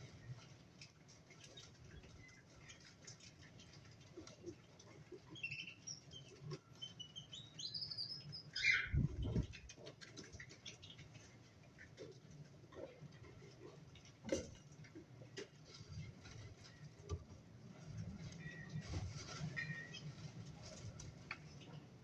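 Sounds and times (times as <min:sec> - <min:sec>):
cockatiels chirping and whistling: 0:05.4 - 0:09.4, 0:19.6 - 0:20.1
scratching and pattering of feet: 0:09.0 - 0:22.0.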